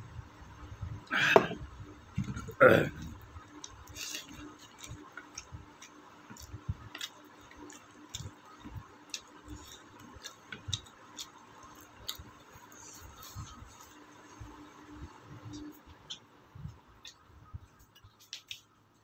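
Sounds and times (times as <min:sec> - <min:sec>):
person chewing: 0:02.5 - 0:13.9.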